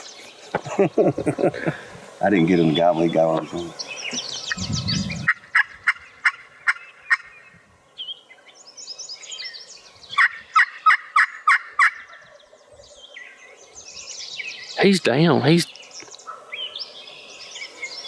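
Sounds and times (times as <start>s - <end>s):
turkey calls: 0.0s - 7.3s, 10.1s - 12.4s
songbirds chirping: 0.0s - 18.0s.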